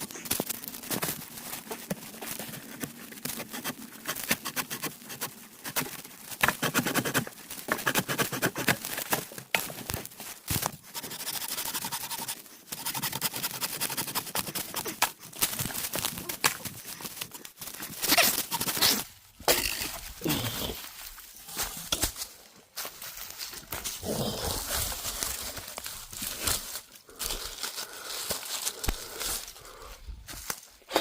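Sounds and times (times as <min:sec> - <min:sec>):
scraping and tearing wood: 0:00.0 - 0:22.2.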